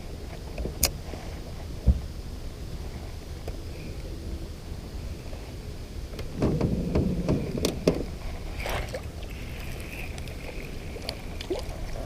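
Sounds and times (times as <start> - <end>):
low steady rumble: 0.0 - 12.0
water splashing: 8.1 - 12.0.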